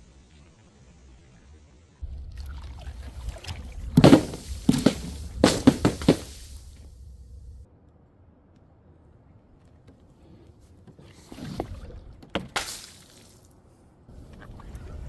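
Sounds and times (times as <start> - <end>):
low rumble: 2.0 - 7.8
objects crashing onto hard surface: 3.9 - 7.1.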